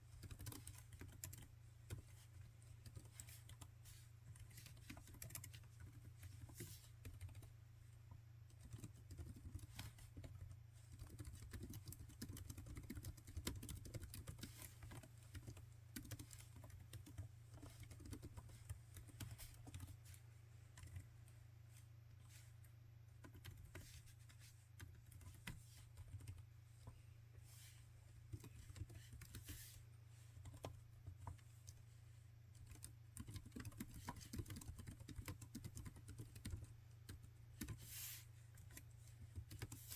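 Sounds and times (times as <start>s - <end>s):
typing on laptop keyboard: 0.1s - 2.1s, 2.8s - 3.7s, 4.3s - 7.5s, 8.5s - 20.0s, 23.2s - 24.0s, 24.8s - 26.4s, 28.3s - 29.5s, 30.4s - 31.8s, 32.5s - 37.8s, 38.6s - 39.9s.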